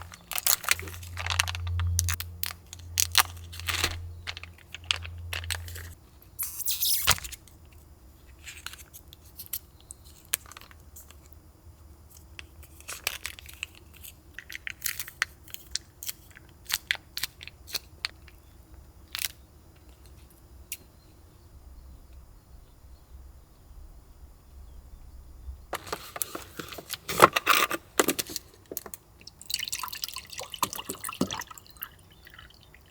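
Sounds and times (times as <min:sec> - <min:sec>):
rustling: 0:00.0 - 0:06.0, 0:25.8 - 0:28.8
faint low hum: 0:00.0 - 0:32.9.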